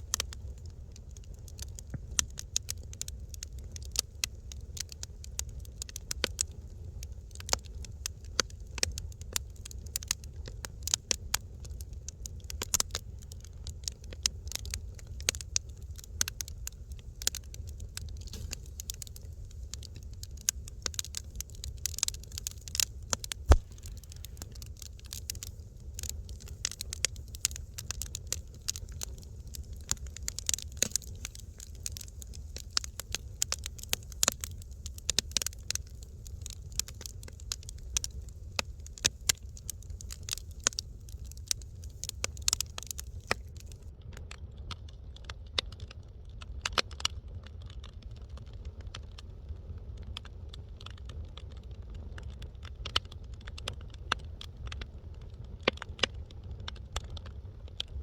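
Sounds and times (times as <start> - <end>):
wood fire crackling: 0.0 - 58.0
faint hiss: 21.5 - 33.4.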